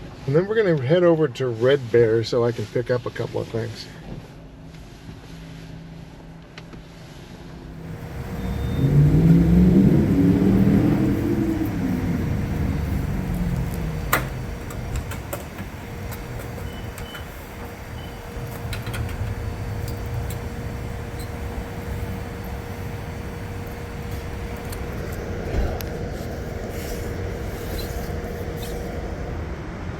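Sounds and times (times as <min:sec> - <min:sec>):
engine and road noise rumble: 0:00.0 - 0:29.9
vehicle engine slowing: 0:07.6 - 0:29.9
faint short beeps: 0:08.4 - 0:08.9.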